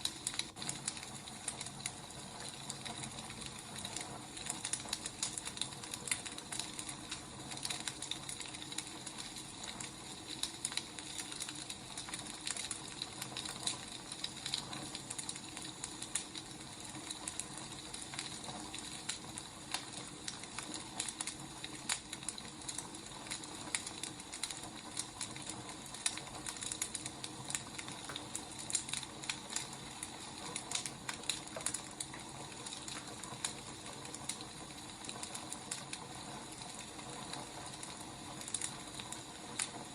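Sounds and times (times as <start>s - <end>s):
firewood crackling: 0.0s - 39.9s.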